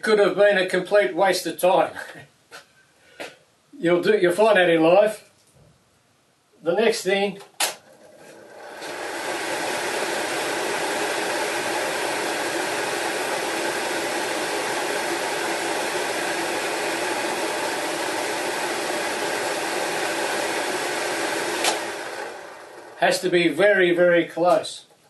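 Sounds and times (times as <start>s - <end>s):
range hood fan running: 7.6s - 23.8s.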